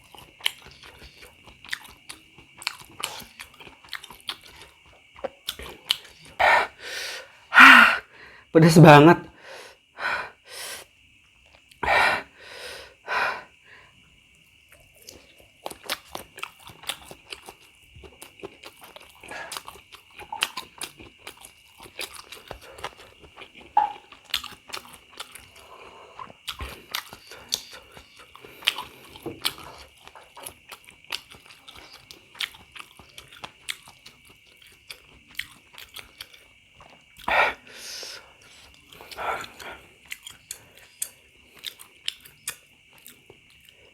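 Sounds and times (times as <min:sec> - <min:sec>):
wet chewing clicks and smacks: 0:00.0 - 0:06.4, 0:14.7 - 0:37.3, 0:38.4 - 0:43.9.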